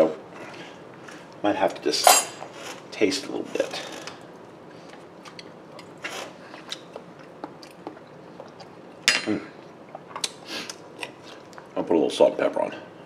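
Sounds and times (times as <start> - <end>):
person chewing: 4.8 - 8.8.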